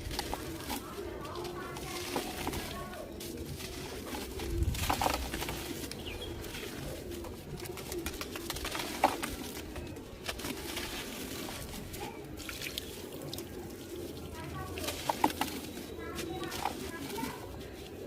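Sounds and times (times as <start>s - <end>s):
dry clay crunching: 0.0s - 18.0s
pigeons cooing: 0.0s - 18.0s.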